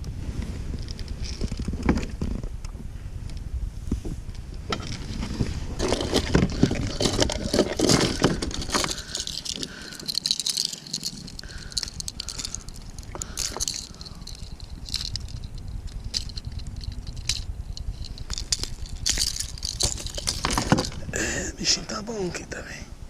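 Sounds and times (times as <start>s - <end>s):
wind rumbling on microphone: 0.0s - 23.0s
dense rattling and clattering: 4.7s - 21.3s
scattered clicks: 5.8s - 21.0s.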